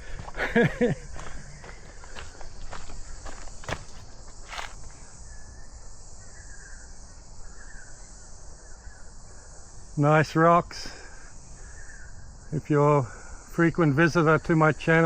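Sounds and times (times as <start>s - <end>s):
footsteps on trail: 0.0s - 5.1s
insects chorus: 0.0s - 15.0s.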